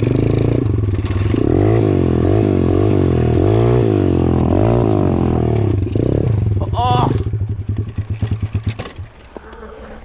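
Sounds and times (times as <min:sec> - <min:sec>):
clatter: 0:00.0 - 0:01.6, 0:07.2 - 0:09.6
dirt bike motor revving: 0:00.0 - 0:09.9.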